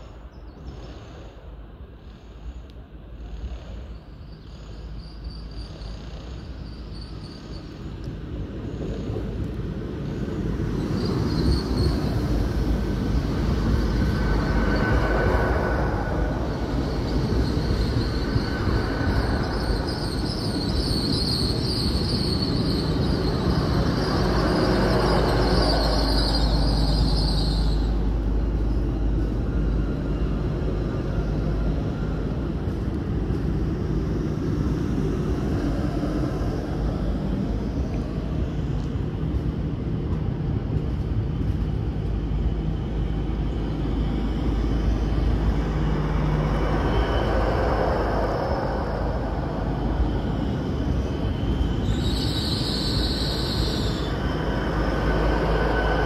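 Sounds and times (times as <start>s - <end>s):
train rumble and hum: 0.0s - 56.0s
high squeal: 2.2s - 9.4s, 10.0s - 32.8s, 42.7s - 56.0s.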